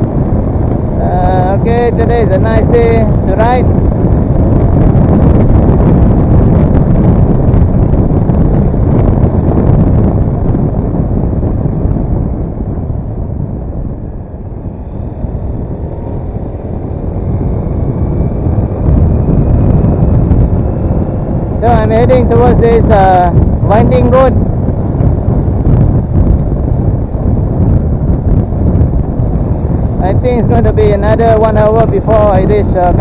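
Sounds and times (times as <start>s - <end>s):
scooter engine and road noise: 0.0s - 33.0s
wind buffeting microphone: 0.0s - 33.0s
faint rising whine: 11.5s - 22.8s.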